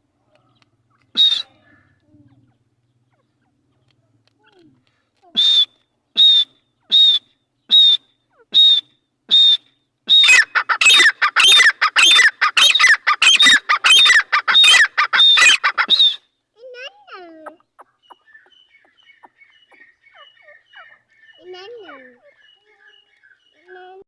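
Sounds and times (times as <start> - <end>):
partridge calling: 10.1 - 16.2, 17.4 - 23.6.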